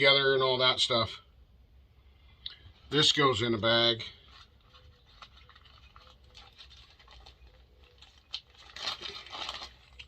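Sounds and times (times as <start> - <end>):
plastic bag rustling: 4.0 - 10.0.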